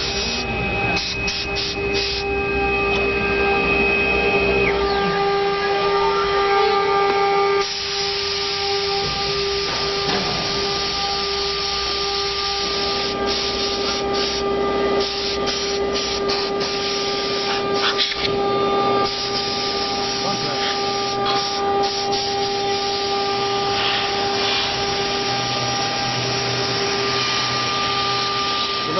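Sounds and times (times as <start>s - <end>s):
cutting hiss: 0.0s - 2.3s, 7.5s - 18.3s, 19.0s - 28.9s
router spindle whining: 0.0s - 28.9s.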